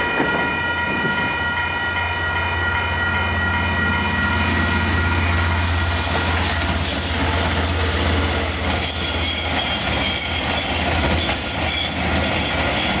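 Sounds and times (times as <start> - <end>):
train wheels clattering on rails: 5.6 - 13.0.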